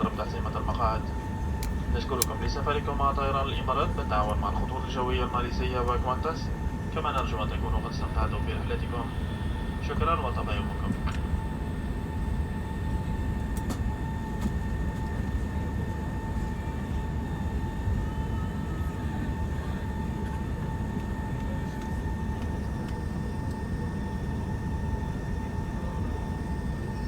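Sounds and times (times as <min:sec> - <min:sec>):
steady whine: 0:00.0 - 0:19.8
aircraft cabin rumble: 0:00.0 - 0:27.0.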